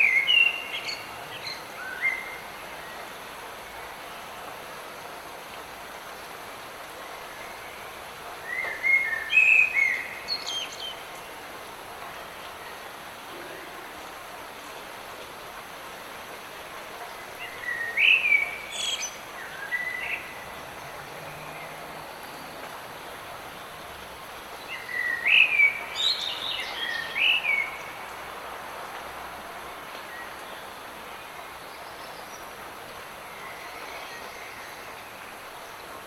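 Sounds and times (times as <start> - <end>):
songbird singing: 0.0 - 4.3, 7.2 - 11.6, 17.0 - 28.4
light rain: 0.0 - 36.0.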